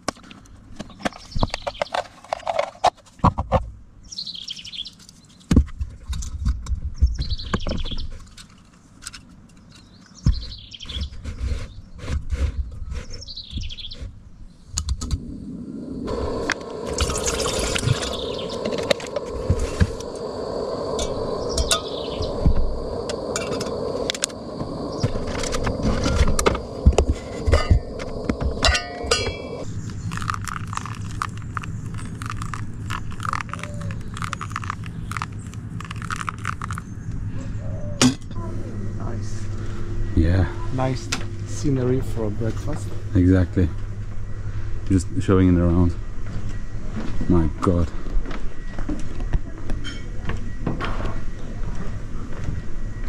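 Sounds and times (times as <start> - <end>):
steady rushing noise: 15.0 - 36.8
bird calling: 16.1 - 40.8.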